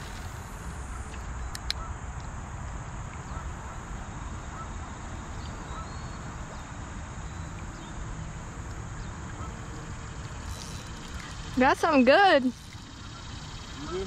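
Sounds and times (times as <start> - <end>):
insects chirring: 0.0 - 14.0
low steady rumble: 0.0 - 14.0
faint bird chirps: 9.0 - 14.0.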